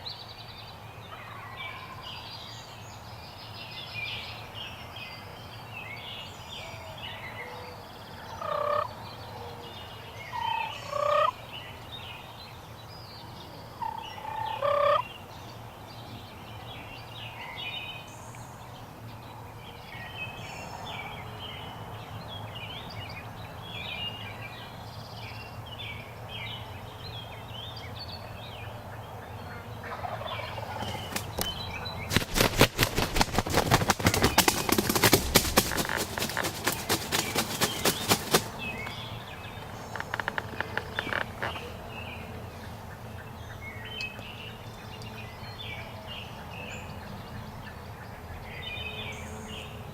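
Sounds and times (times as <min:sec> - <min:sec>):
songbirds chirping: 0:00.0 - 0:49.9
turkey gobbling: 0:29.8 - 0:31.3
crackling clicks: 0:39.9 - 0:41.6.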